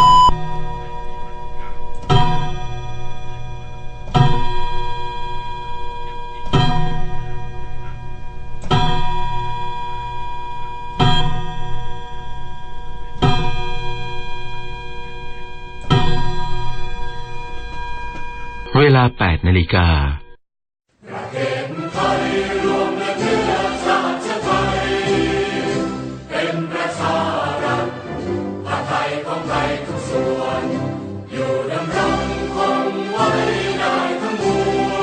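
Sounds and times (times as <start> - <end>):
clock chime striking: 0.0 - 18.9.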